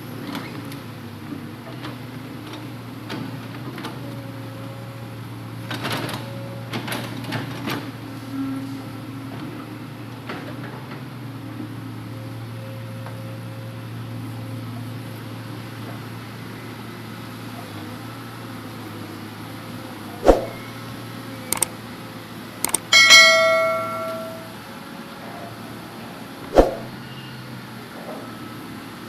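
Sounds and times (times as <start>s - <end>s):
excavator engine running: 20.0s - 24.6s
metal clanks: 22.7s - 24.5s
sharp knock: 22.7s - 24.5s
struck steel clang ringing: 22.8s - 24.6s.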